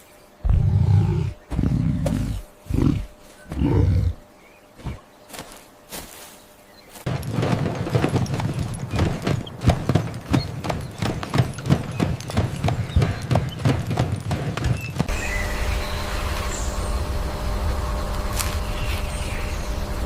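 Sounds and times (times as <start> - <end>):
hooves clopping: 4.8 - 15.3.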